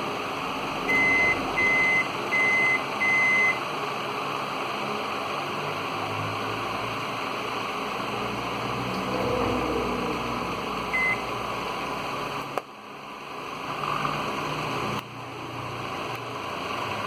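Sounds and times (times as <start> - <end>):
microwave buzzer beeping: 0.9 - 3.6, 10.9 - 11.3.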